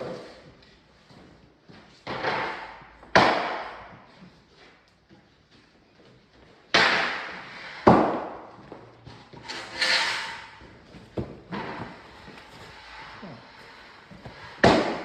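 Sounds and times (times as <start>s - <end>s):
floorboards knocked on concrete: 2.0s - 4.0s, 6.7s - 8.8s, 14.1s - 15.0s.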